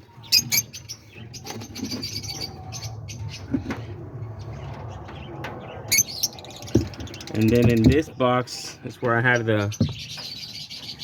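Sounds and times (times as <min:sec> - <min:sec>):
parrots chirping: 0:00.1 - 0:03.5, 0:04.4 - 0:07.9.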